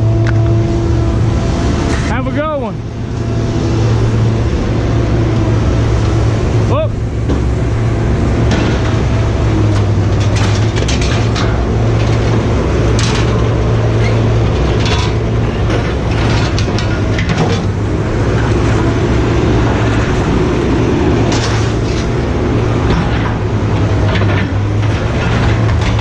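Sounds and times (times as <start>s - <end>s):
heavy engine humming: 0.0s - 26.0s
metallic clanks and knocks: 8.4s - 20.4s, 21.1s - 26.0s.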